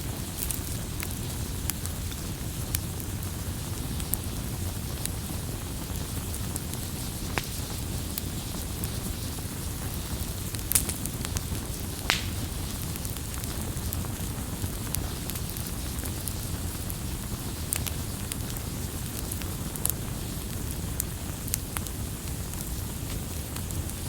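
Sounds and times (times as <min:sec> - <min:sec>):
burning wood popping: 0:00.0 - 0:24.0
campfire low rumble: 0:00.0 - 0:24.0.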